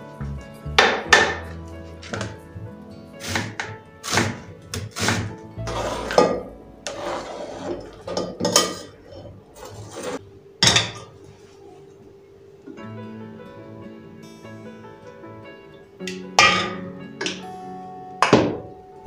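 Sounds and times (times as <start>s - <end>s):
soft background music: 0.0s - 19.0s
kitchenware knocking and clattering: 0.8s - 2.4s, 7.7s - 11.1s, 16.4s - 17.4s.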